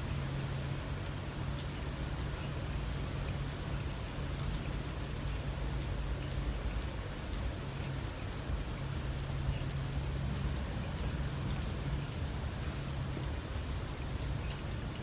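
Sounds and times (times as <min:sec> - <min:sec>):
light rain: 0:00.0 - 0:15.0
faint high insect trill: 0:00.7 - 0:04.6.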